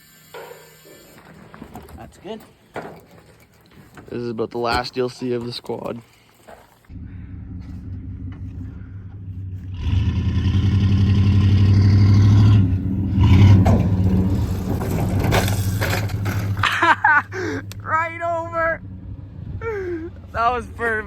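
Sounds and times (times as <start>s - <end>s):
small quad engine revving: 6.9s - 21.0s.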